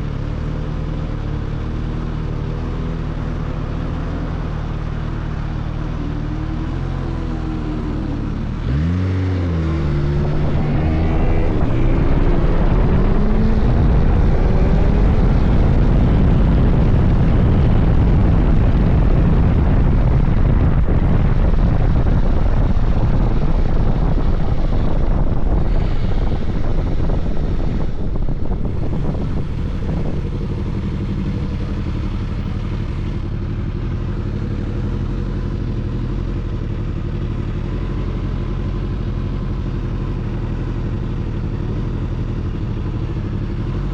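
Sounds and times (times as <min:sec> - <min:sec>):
motorcycle engine accelerating: 0:00.0 - 0:43.9
wind rush: 0:05.2 - 0:33.3.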